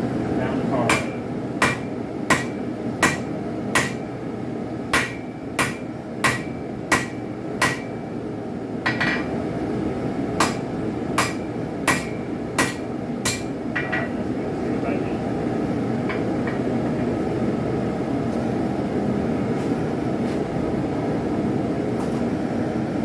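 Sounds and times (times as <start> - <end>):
hammer striking metal on anvil: 0.9 - 4.0, 4.9 - 8.0, 10.4 - 14.2.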